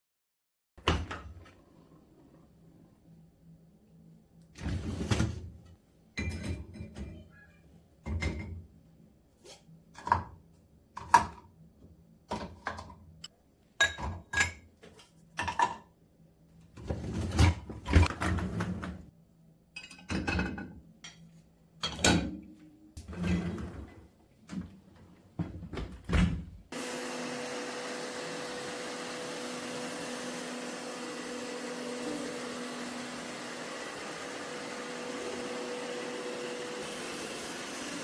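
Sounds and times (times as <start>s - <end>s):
dishes and utensils clattering: 6.2s - 7.3s, 19.8s - 21.2s.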